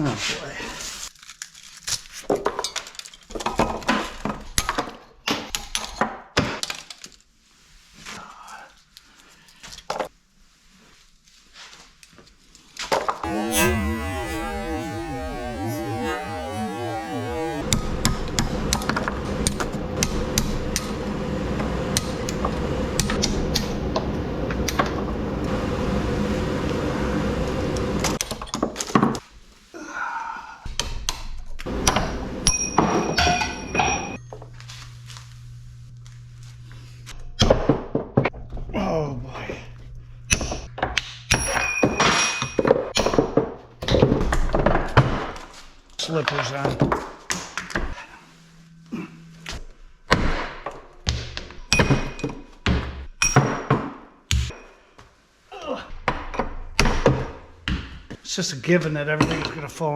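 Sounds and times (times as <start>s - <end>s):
mechanical hum: 13.2s - 28.2s, 31.7s - 37.4s.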